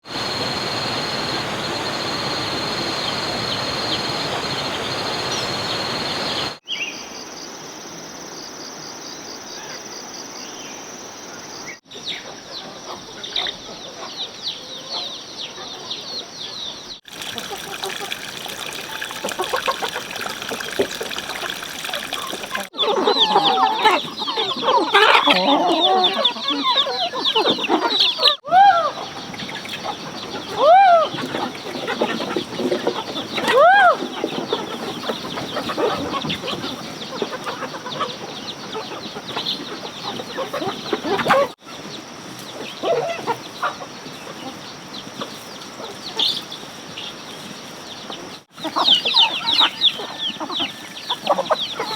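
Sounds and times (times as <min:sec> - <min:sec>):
chickens clucking: 0:12.2 - 0:51.9
rising and falling calls: 0:17.1 - 0:29.2.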